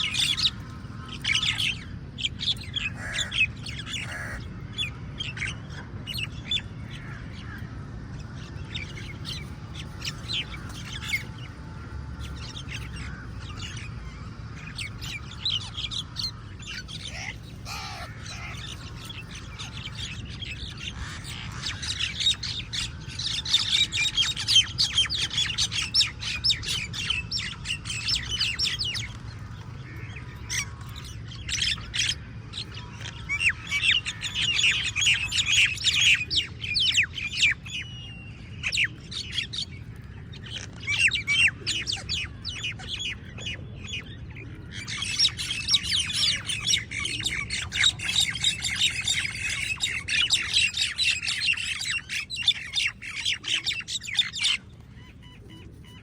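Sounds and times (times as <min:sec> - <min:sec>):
crows cawing: 0:00.0 - 0:05.1, 0:06.4 - 0:37.4.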